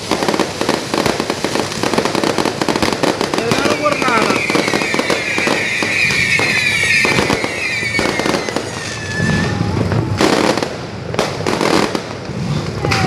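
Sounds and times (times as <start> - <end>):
firecrackers banging and crackling: 0.0 - 13.0
descending firework whistle: 3.4 - 10.8.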